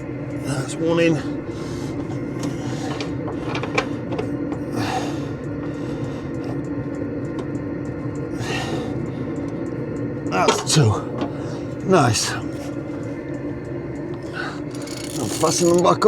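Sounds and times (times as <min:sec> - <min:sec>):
steady hum: 0:00.0 - 0:16.0
breathy rushes: 0:00.4 - 0:06.8, 0:08.3 - 0:09.5.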